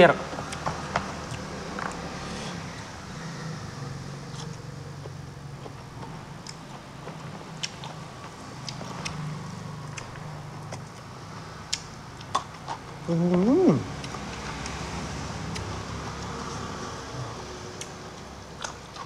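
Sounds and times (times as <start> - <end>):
man chewing food: 0.3 - 2.2, 4.2 - 19.0
mouth smacks and clicks: 9.9 - 11.1, 11.7 - 14.8, 15.5 - 15.7.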